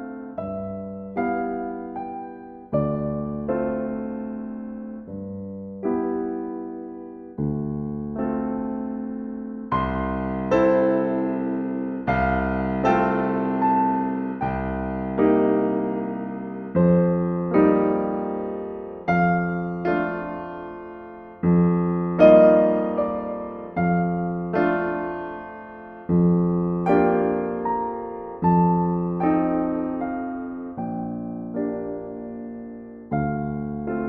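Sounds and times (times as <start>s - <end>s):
slow gentle piano chords: 0.0s - 34.0s.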